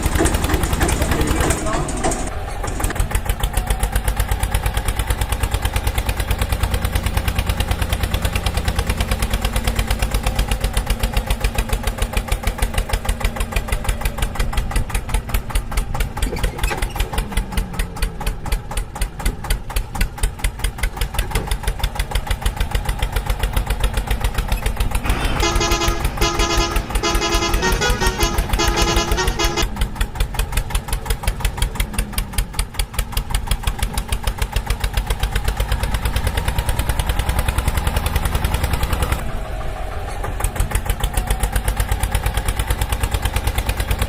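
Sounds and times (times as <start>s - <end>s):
tractor engine chugging: 0.0s - 44.0s
horn-like tone: 25.1s - 29.7s.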